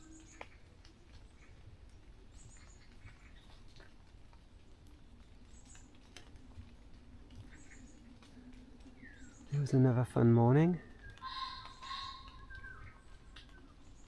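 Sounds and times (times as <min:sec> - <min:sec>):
short high bird calls: 0:11.2 - 0:13.1.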